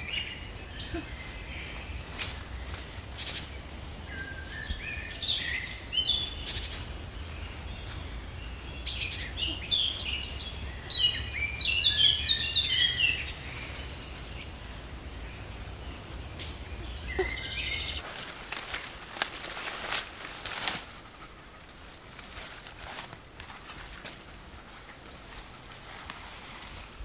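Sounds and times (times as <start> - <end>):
birds singing: 0.0 - 18.0.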